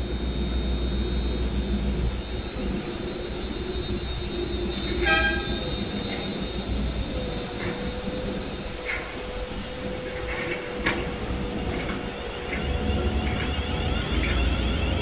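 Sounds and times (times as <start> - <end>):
thin high whine: 0.0 - 15.0
train running rumble: 0.0 - 15.0
train horn toot: 4.6 - 6.6, 12.4 - 15.0.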